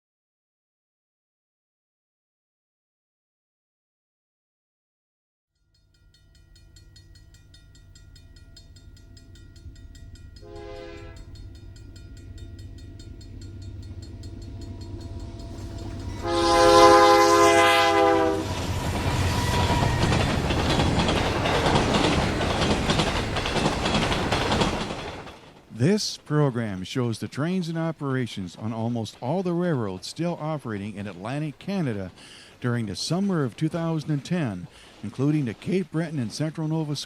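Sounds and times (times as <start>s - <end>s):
diesel locomotive rumble: 7.3s - 26.0s
train horn blasts: 10.4s - 11.4s, 15.5s - 20.2s
wheels clicking over rail joints: 11.2s - 17.0s, 18.5s - 26.4s, 27.4s - 37.0s.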